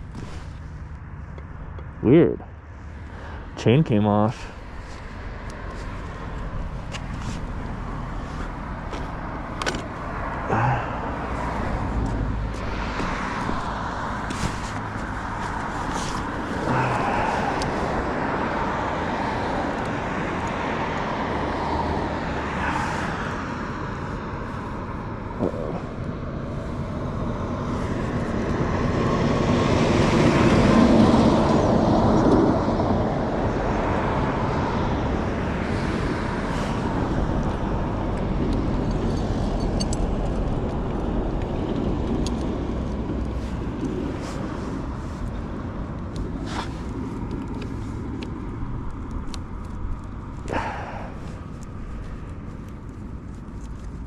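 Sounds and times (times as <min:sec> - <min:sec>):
vehicle passing: 0:00.0 - 0:53.2
road traffic: 0:00.0 - 0:54.0.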